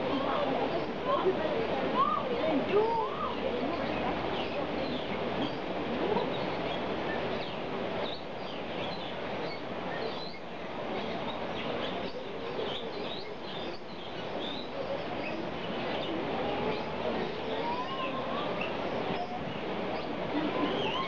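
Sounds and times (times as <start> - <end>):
birds chirping and whistling: 16.7 - 21.0.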